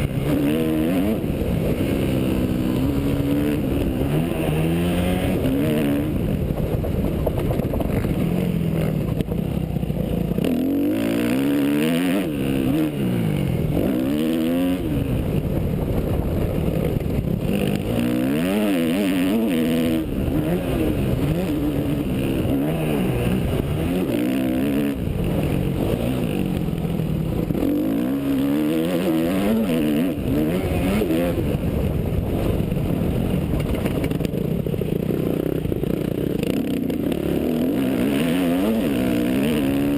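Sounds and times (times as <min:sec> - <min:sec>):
motocross engine revving: 0:00.0 - 0:06.5, 0:10.3 - 0:15.2, 0:17.4 - 0:31.6, 0:35.0 - 0:39.9.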